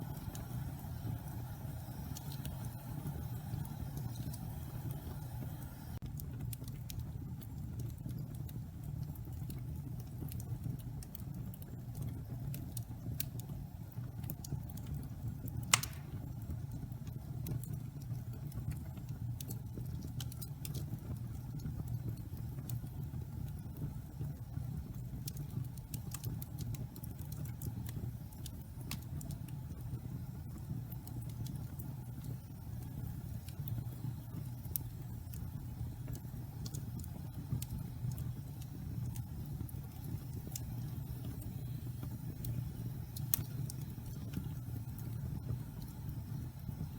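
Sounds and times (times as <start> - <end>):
fire rumbling: 0.0 - 46.9
wood crackling: 15.6 - 16.3
loud pop from fire: 15.7 - 16.3.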